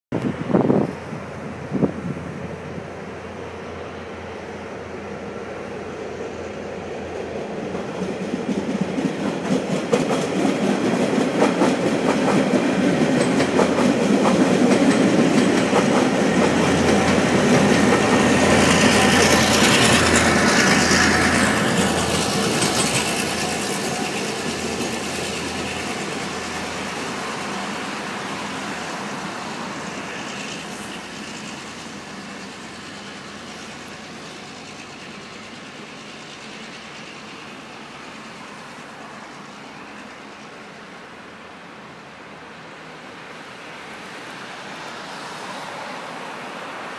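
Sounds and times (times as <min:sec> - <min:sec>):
train engine hum: 0:00.1 - 0:46.9
train wheel clatter: 0:06.2 - 0:40.8.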